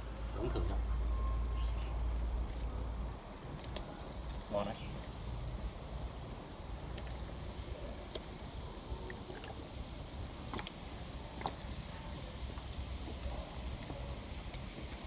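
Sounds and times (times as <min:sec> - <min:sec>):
cola fizzing: 0:00.3 - 0:01.0, 0:05.3 - 0:15.0
cola glugging from bottle: 0:00.4 - 0:00.9, 0:09.0 - 0:09.6.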